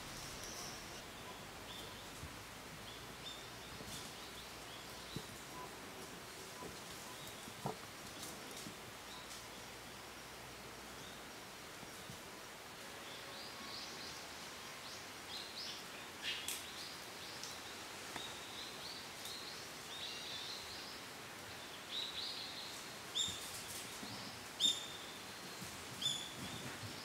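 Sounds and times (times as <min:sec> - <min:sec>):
birds chirping: 0:00.0 - 0:02.2
faint steady hiss: 0:00.0 - 0:27.0.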